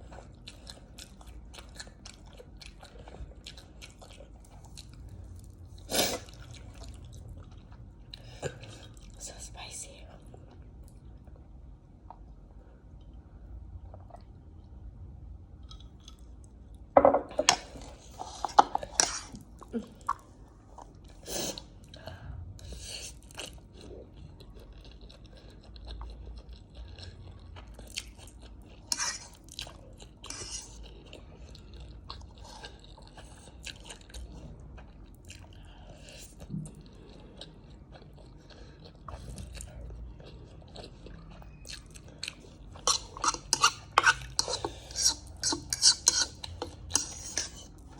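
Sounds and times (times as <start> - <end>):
wet chewing: 36.4 - 47.9.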